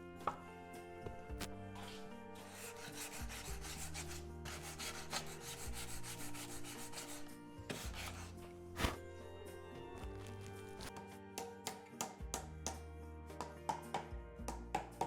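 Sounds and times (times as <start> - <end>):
background music with bass: 0.0 - 15.0
hand rubbing on wood: 1.8 - 9.0.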